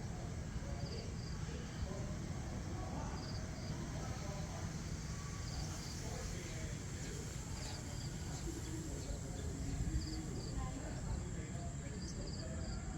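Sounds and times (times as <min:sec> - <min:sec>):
low rumble of wind: 0:00.0 - 0:12.9.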